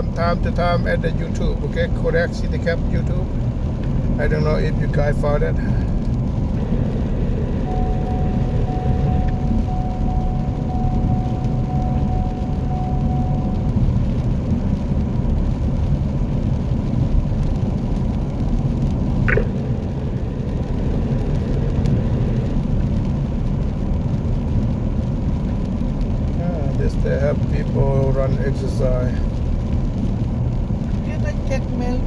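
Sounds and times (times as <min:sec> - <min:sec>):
car engine and tyres rumbling: 0:00.0 - 0:32.0
faint steady whine: 0:06.6 - 0:14.1
short chirp: 0:19.3 - 0:19.6.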